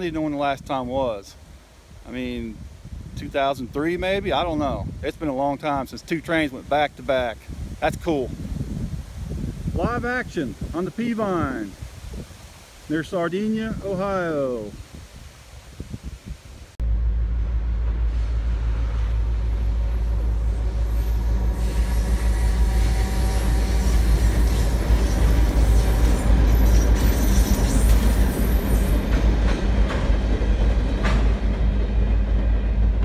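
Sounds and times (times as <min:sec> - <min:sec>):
locomotive engine drone: 0:16.8 - 0:33.0
train wheels rumbling on rails: 0:16.8 - 0:33.0.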